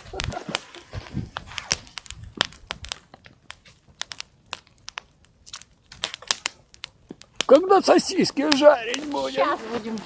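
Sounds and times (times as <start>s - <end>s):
campfire crackling and popping: 0.0s - 10.0s.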